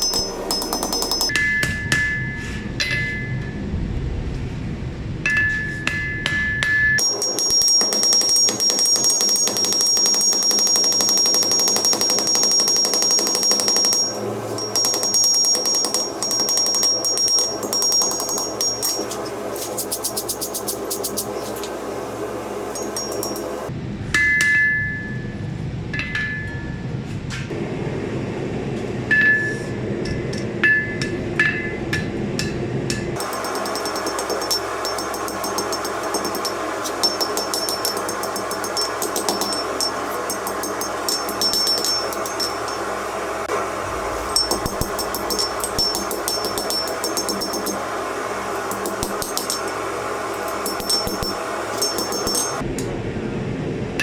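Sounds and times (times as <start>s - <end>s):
hammer striking steel on anvil: 0.0s - 3.3s, 5.3s - 24.9s, 30.3s - 52.6s
low steady rumble: 2.6s - 6.7s, 32.1s - 54.0s
forge rushing: 43.4s - 51.6s.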